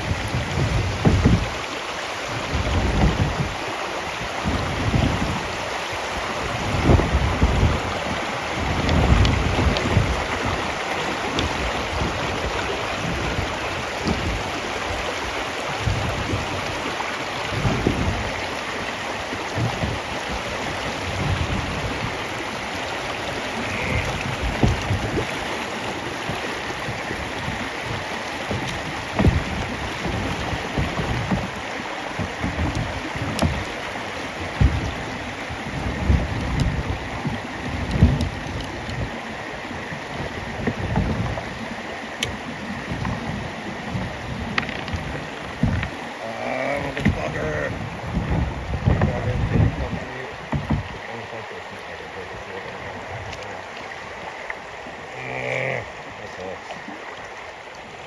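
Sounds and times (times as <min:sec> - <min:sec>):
low thumps and rumbles: 0:00.0 - 0:01.6, 0:02.4 - 0:03.6, 0:04.4 - 0:05.5, 0:06.4 - 0:15.0, 0:15.7 - 0:16.8, 0:17.5 - 0:18.5, 0:19.4 - 0:22.5, 0:23.4 - 0:39.2, 0:39.8 - 0:41.6, 0:42.2 - 0:51.2
river water rushing: 0:00.0 - 0:58.0.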